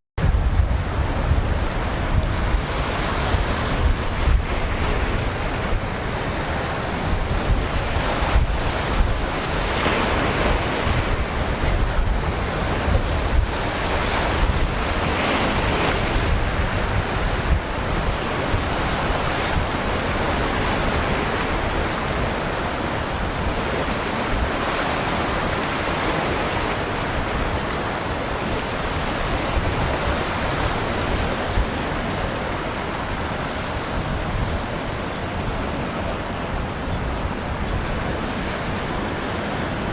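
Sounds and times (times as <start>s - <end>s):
waves breaking: 0.2s - 39.9s
wind buffeting microphone: 0.2s - 39.9s.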